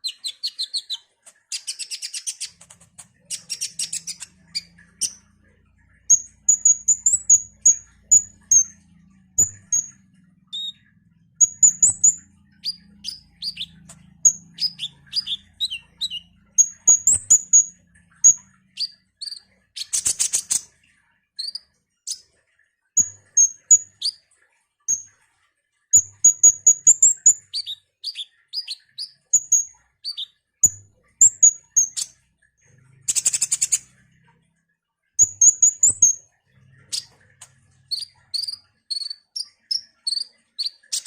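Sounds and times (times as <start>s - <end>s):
sunbird high chirps: 11.4s - 20.6s.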